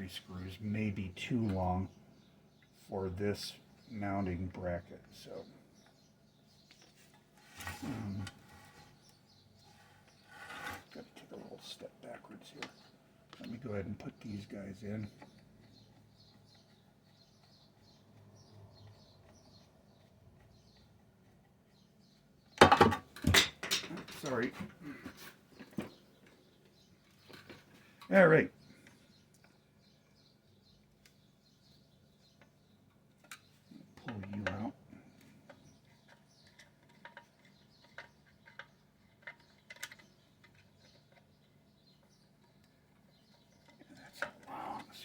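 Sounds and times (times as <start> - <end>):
light clicks of metal parts: 32.2 - 45.0.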